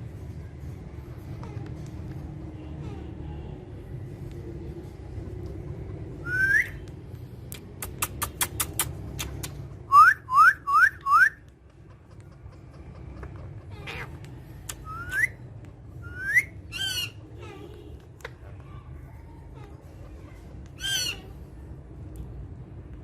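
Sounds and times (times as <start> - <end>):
parrot whistling: 6.2 - 6.8, 9.9 - 11.4, 14.8 - 15.4, 16.0 - 17.2
sharp clicks: 6.8 - 9.8, 14.6 - 15.8.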